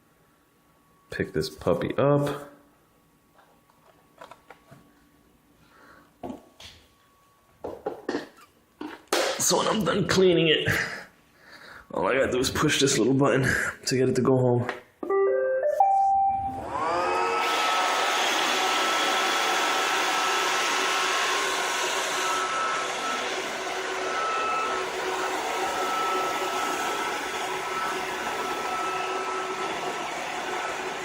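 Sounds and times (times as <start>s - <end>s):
robot vacuum motor whirring: 16.6s - 31.0s.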